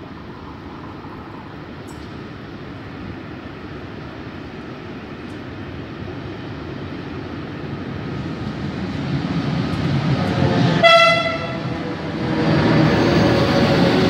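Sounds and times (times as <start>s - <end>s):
freight train rumbling on rails: 0.0s - 14.0s
train horn blast: 10.4s - 11.8s.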